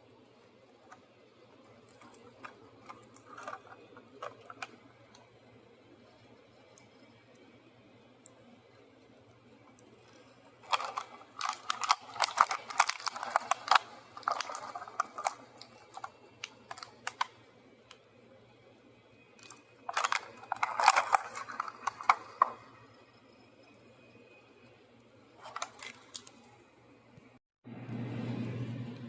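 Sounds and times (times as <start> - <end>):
plastic packaging crackling: 1.5 - 5.2, 9.7 - 17.4, 19.4 - 22.8, 25.4 - 26.5.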